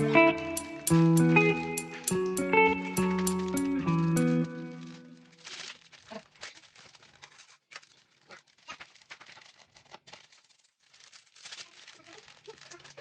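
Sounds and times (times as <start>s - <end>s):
song: 0.0s - 5.2s
rustling and crinkling: 0.1s - 13.0s.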